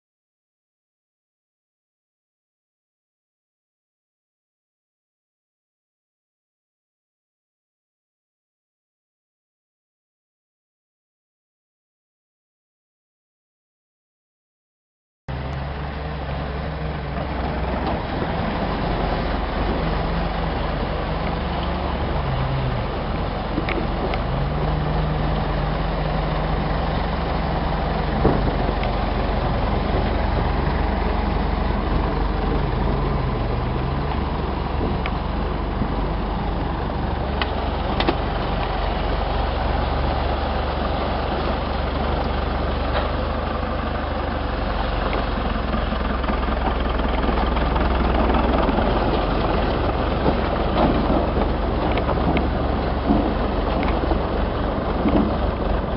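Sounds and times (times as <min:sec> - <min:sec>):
vehicle engine running at low revs: 0:15.3 - 0:55.9.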